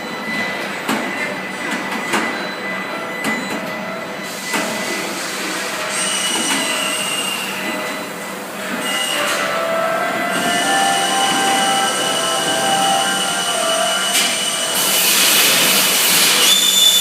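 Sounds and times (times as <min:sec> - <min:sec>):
high held machine whines: 0:04.2 - 0:17.0.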